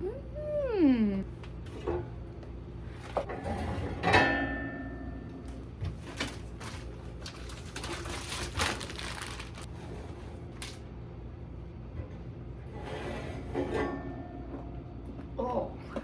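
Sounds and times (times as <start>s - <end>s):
packaging rustling and clattering: 5.9s - 9.7s.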